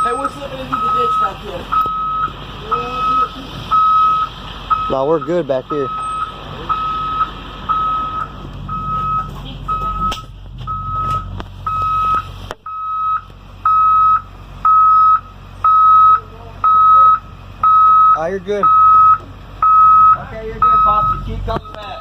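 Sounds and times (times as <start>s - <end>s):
backup alarm beeping: 0.0s - 22.0s
low rumble: 6.2s - 13.6s.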